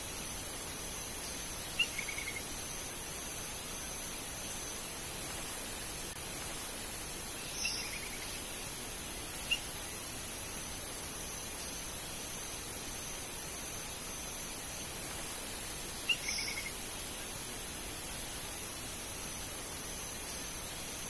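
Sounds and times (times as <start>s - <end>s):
steady hiss: 0.0s - 21.0s
faint bird calls: 1.2s - 2.5s, 16.0s - 16.8s.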